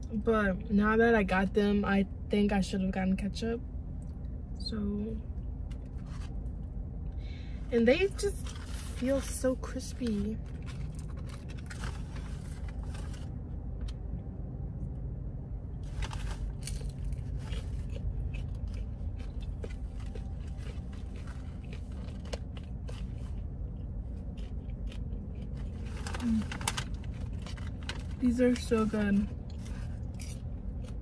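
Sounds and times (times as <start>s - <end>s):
steady low rumble: 0.0s - 31.0s
crunching and chewing food: 5.3s - 7.2s, 8.1s - 15.0s, 15.7s - 31.0s.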